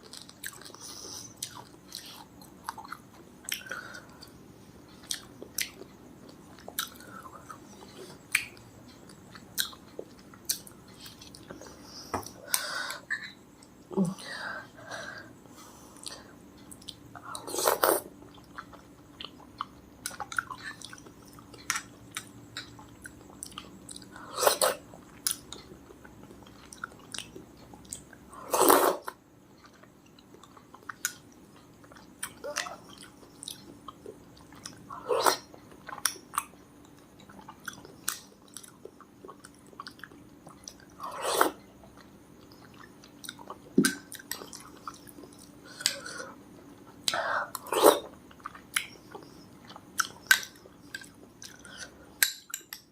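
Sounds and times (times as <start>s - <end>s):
person chewing food: 0.0s - 13.8s, 15.9s - 52.9s.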